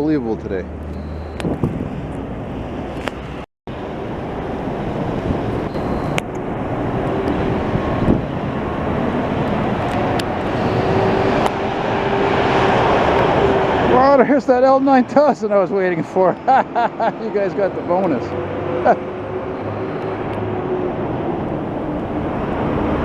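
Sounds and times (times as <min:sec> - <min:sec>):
truck engine and tyre noise: 0:00.0 - 0:23.0
wind on microphone: 0:01.3 - 0:13.9.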